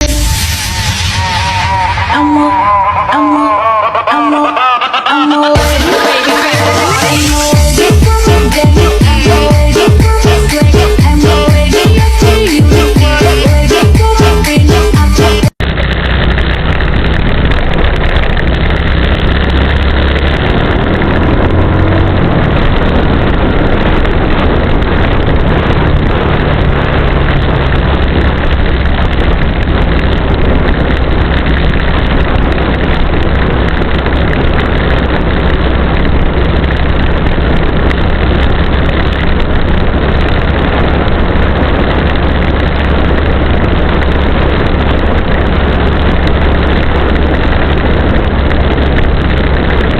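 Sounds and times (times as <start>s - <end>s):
strong wind buffeting microphone: 15.5s - 49.9s.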